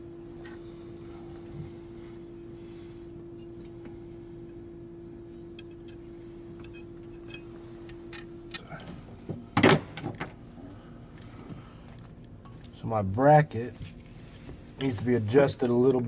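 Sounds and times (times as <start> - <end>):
steady hum: 0.0 - 16.0
metal tools clicking and clunking: 5.5 - 8.9.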